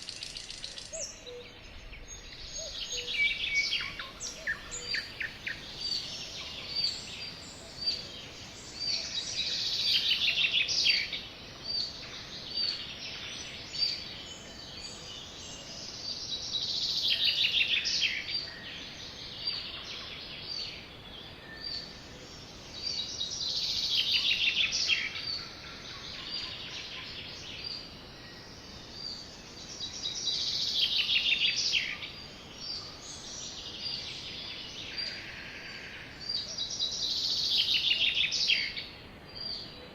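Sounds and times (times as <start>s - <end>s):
sparrows chirping: 0.0s - 39.8s
faint steady hiss: 0.0s - 39.9s.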